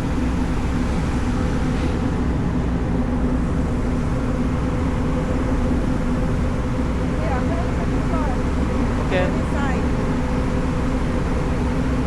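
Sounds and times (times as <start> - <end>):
ship engines droning: 0.0 - 12.0.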